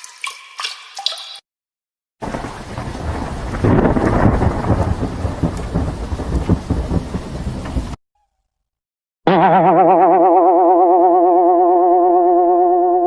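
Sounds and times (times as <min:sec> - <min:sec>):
heavy rain: 0:02.2 - 0:08.0
thunder rumbling: 0:02.2 - 0:08.0.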